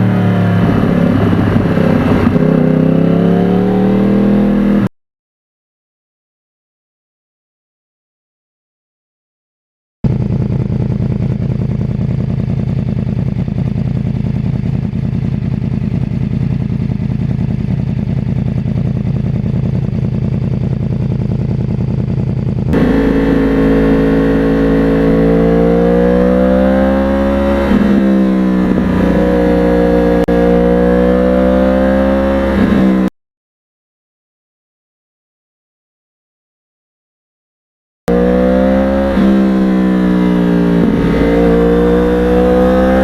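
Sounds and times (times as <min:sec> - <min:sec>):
motorcycle engine revving: 0:00.0 - 0:04.9, 0:10.1 - 0:33.1, 0:38.1 - 0:43.0.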